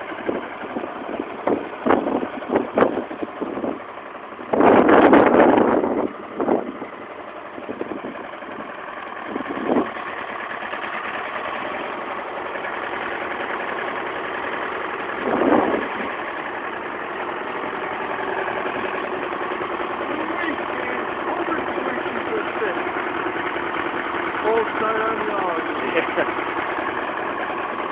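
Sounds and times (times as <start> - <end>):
tractor engine idling: 0.0 - 27.9.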